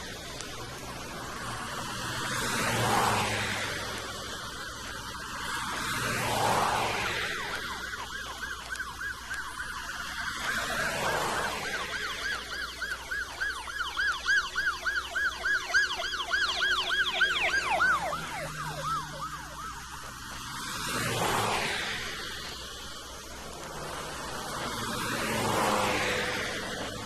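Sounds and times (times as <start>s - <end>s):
rush of vehicle noise: 0.0s - 27.0s
police siren yelp: 2.5s - 21.0s.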